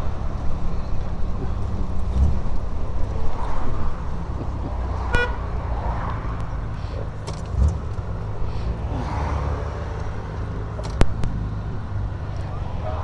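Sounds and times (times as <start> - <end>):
car engine running: 0.0 - 13.0
road and wind noise: 0.0 - 13.0
car horn toot: 5.0 - 6.0.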